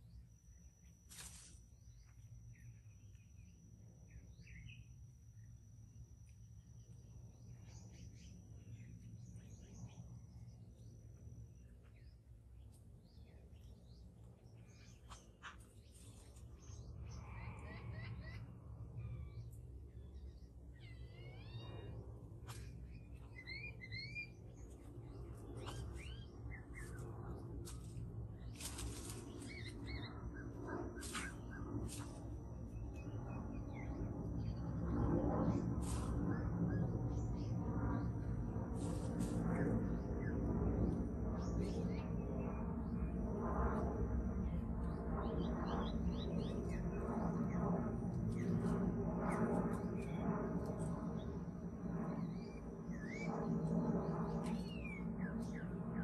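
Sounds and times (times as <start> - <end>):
steady low rumble: 0.0 - 56.0
birds whistling calls: 22.5 - 24.7
small birds chirping: 22.5 - 34.6.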